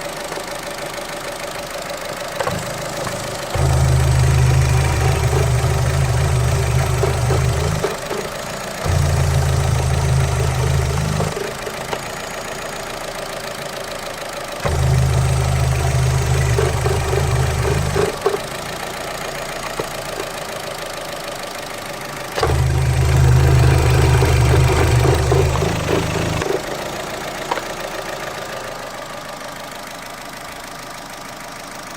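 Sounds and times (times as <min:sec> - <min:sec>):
car engine idling: 0:00.0 - 0:31.9
loud deep drone: 0:02.5 - 0:08.1, 0:08.8 - 0:11.7, 0:14.6 - 0:18.2, 0:22.4 - 0:26.6.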